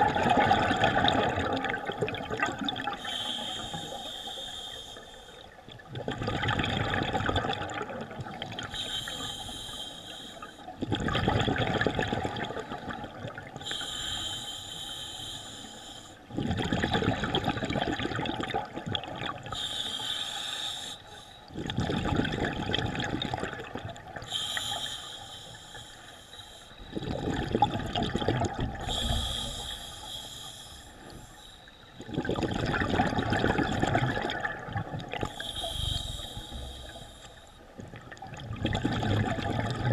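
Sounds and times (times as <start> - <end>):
regulator hiss on inhale: 3.0 - 5.5, 8.6 - 10.7, 13.6 - 16.3, 19.5 - 21.5, 24.2 - 27.0, 28.8 - 32.0, 35.2 - 37.7
rush of exhaust bubbles: 32.0 - 36.9, 37.9 - 39.9.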